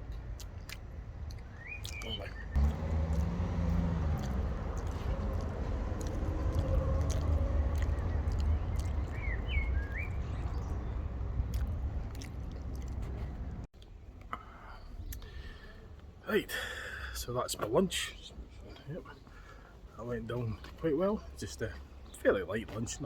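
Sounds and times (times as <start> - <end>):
person chewing pastry: 0.0 - 13.7
low rumble of traffic: 0.0 - 23.0
bird chirping: 0.6 - 2.7, 4.8 - 13.3.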